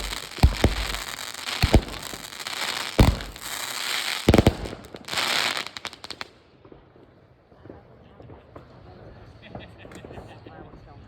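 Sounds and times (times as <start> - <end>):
fireworks booming bangs: 0.0 - 7.0
fireworks crackling: 0.0 - 7.2.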